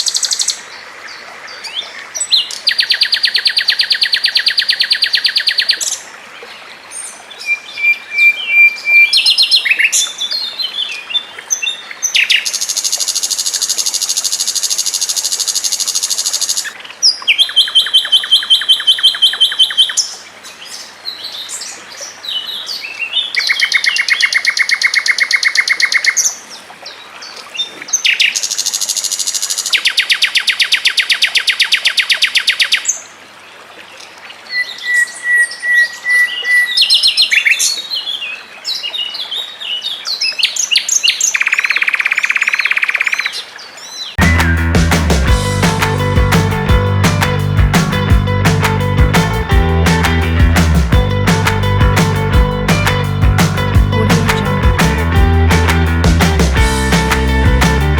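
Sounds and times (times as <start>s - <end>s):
songbird trilling song: 7.4s - 10.2s.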